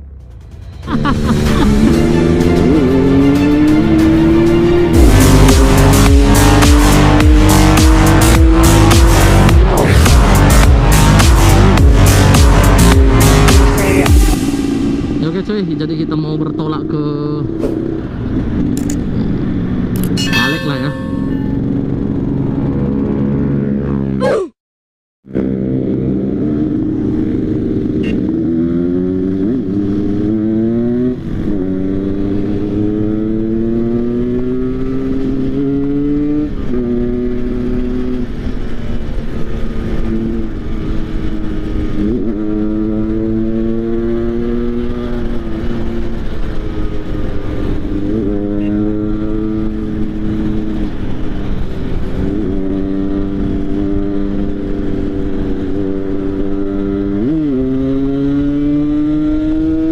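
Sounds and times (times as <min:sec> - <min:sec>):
motorcycle engine shifting gears: 0:25.7 - 0:59.9.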